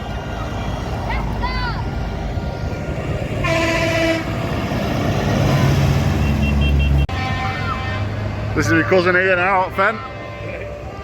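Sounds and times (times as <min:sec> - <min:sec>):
lorry engine rumbling: 0:00.0 - 0:11.0
truck air horn blast: 0:03.4 - 0:04.6, 0:05.4 - 0:11.0.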